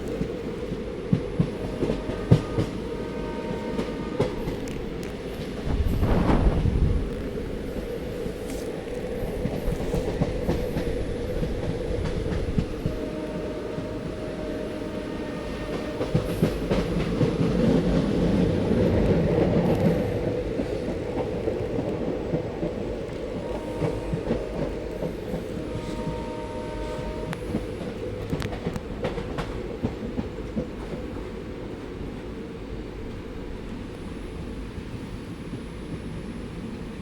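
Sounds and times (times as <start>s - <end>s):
train wheels clattering on rails: 0.0s - 14.4s, 15.0s - 31.5s.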